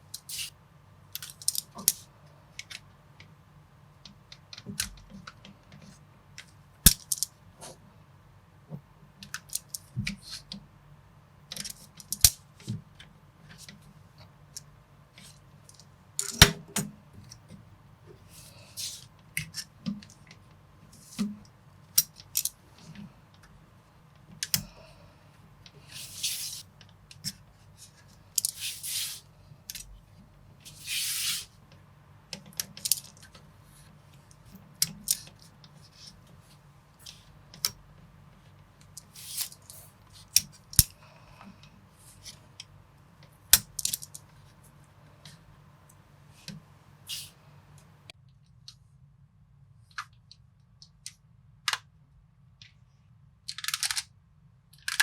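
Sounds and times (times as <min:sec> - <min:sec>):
plastic bricks clicking together: 0:53.5 - 0:54.1, 0:54.8 - 0:55.0.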